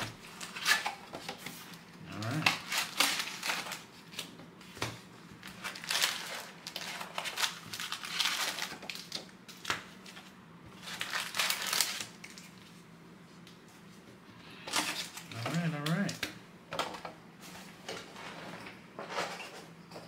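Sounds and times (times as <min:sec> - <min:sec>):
plastic wrapping crinkling and tearing: 0:00.0 - 0:04.4, 0:05.4 - 0:12.7.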